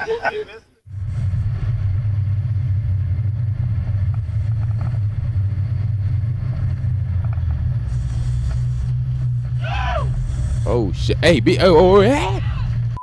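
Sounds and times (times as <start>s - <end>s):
steady low rumble: 0.9s - 13.0s.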